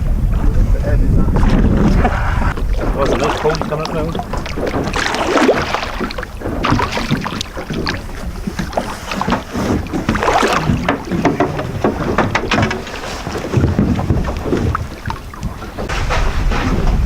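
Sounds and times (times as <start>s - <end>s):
steady low rumble: 0.0s - 8.8s
wind buffeting microphone: 0.0s - 17.0s
gear knocking and clattering: 9.9s - 13.0s.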